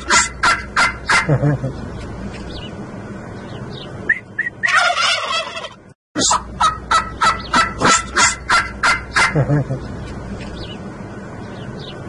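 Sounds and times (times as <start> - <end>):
turkeys gobbling: 0.0 - 1.8, 4.1 - 9.9
short repeated turkey calls: 4.1 - 9.4.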